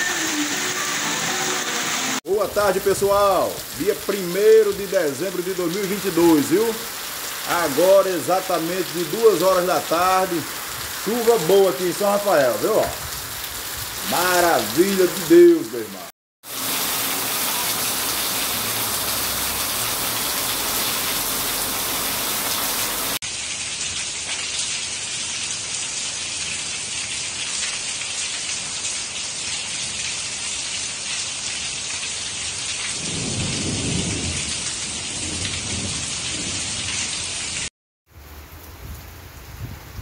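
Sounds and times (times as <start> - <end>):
heavy rain falling: 0.0 - 24.4, 27.6 - 39.6
rain pouring off a roof edge: 2.2 - 39.7
low rumble of thunder: 33.0 - 36.8.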